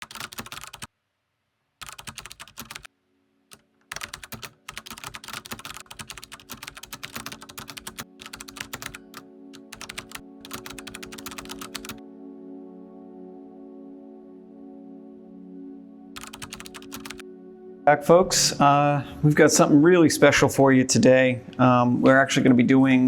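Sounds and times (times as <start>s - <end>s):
fast typing on a keyboard: 0.0s - 0.9s, 1.8s - 2.9s, 3.5s - 12.0s, 16.2s - 17.2s
soft ambient music: 1.8s - 23.0s.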